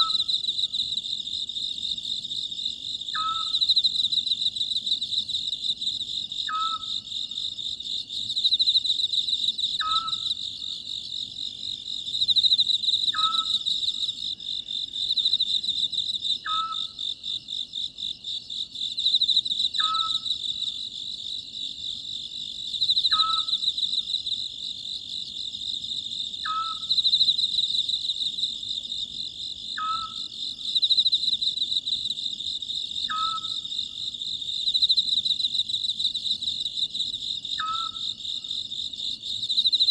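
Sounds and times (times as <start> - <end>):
crickets chirping: 0.0 - 39.9
owl calling: 3.2 - 3.6, 6.5 - 6.9, 9.8 - 10.3, 13.1 - 13.6, 16.4 - 16.9, 19.8 - 20.3, 23.1 - 23.6, 26.4 - 26.9, 29.8 - 30.3, 33.1 - 33.6, 37.6 - 38.0.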